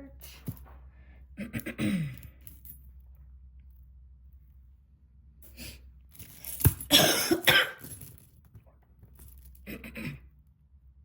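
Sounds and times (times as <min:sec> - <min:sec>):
person coughing: 0:01.4 - 0:02.2, 0:06.9 - 0:07.8, 0:09.7 - 0:10.3.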